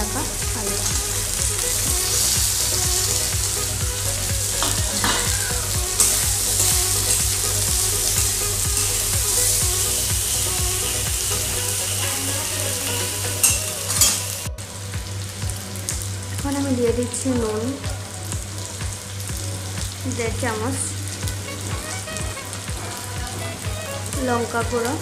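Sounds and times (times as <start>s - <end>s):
steady low hum: 0.0s - 13.4s
food sizzling in oil: 0.0s - 25.0s.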